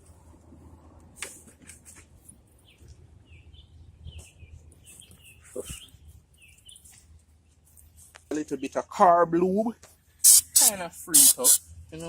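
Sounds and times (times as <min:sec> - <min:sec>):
small birds chirping: 0:02.5 - 0:07.5.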